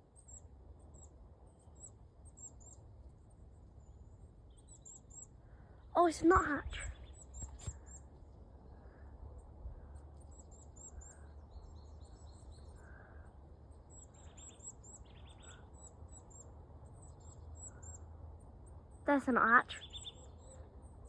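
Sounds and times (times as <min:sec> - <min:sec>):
high thin bird calls: 0:06.0 - 0:08.1.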